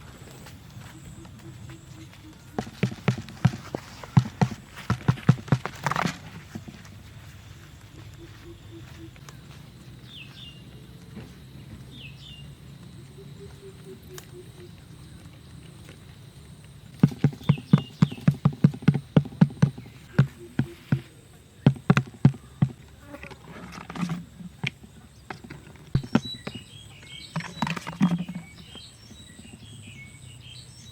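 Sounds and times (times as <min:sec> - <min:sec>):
sharp taps: 0:02.5 - 0:06.1, 0:17.0 - 0:22.8
rustling scrapes: 0:02.8 - 0:07.6.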